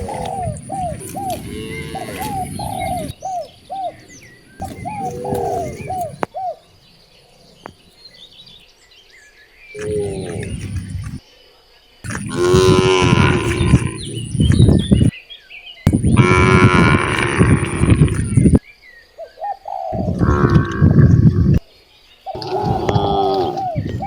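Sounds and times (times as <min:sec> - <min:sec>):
cows mooing: 0:00.0 - 0:03.1, 0:12.1 - 0:15.0, 0:15.9 - 0:18.6, 0:22.4 - 0:24.0.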